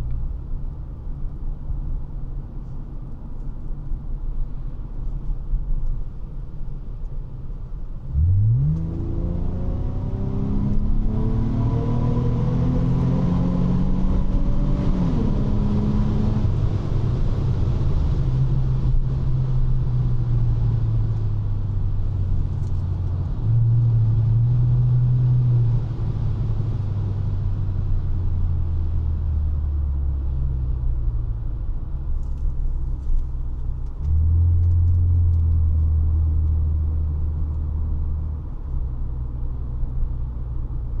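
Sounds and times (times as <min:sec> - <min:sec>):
car exhaust accelerating: 0:08.0 - 0:41.0.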